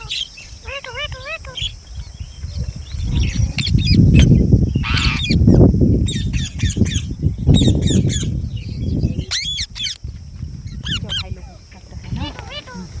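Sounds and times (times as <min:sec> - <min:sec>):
parakeets squawking: 0:00.0 - 0:01.9, 0:03.0 - 0:08.3, 0:10.7 - 0:13.0.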